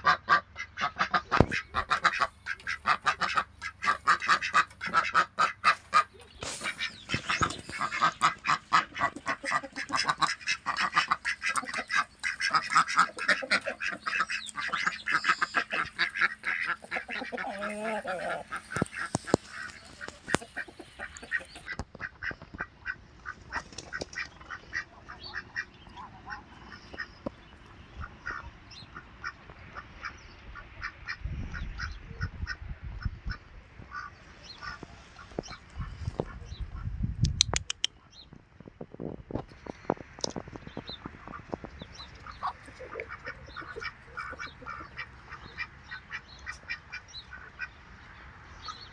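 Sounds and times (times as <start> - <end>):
ducks quacking: 0.0 - 37.0, 40.6 - 48.9.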